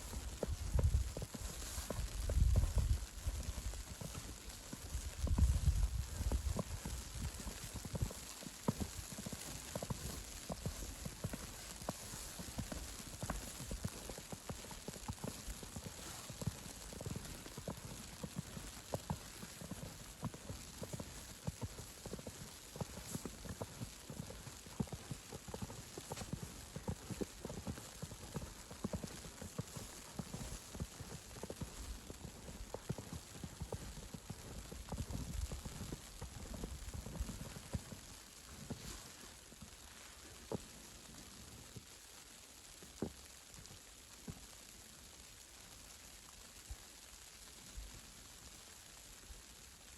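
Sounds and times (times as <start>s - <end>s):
footsteps crunching in snow: 0.0s - 41.8s
faint hiss: 0.0s - 49.9s.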